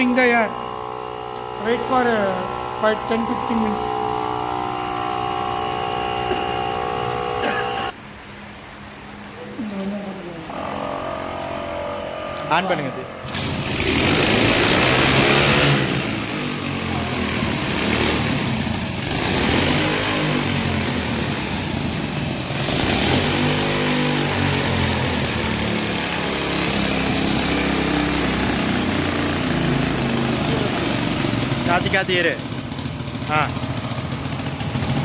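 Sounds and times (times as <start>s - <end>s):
motorcycle engine running: 0.0s - 8.0s, 10.5s - 35.0s.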